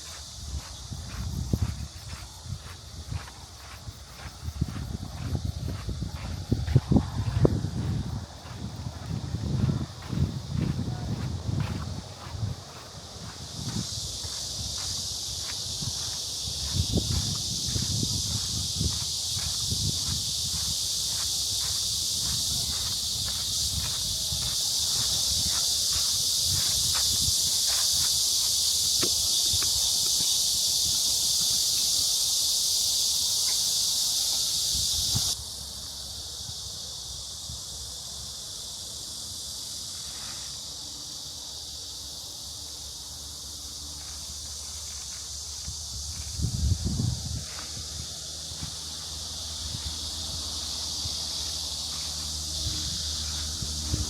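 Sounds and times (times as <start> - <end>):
footsteps on a path: 0.0 - 36.0, 38.6 - 54.0
cicadas buzzing: 0.0 - 54.0.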